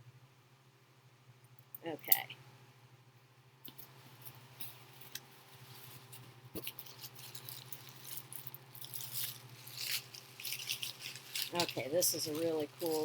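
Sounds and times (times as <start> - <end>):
paper towel crinkling: 3.8 - 13.0.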